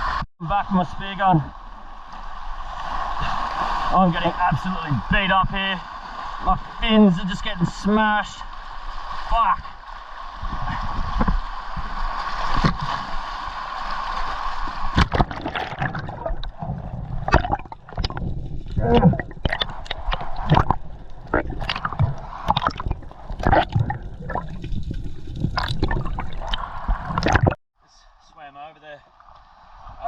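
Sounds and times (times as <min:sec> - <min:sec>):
seawater sloshing and splashing: 0:07.7 - 0:27.6.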